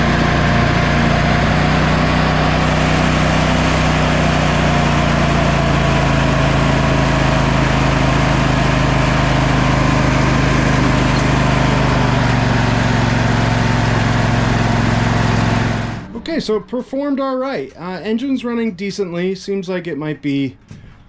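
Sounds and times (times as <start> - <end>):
lawn tractor engine running: 0.0 - 16.4.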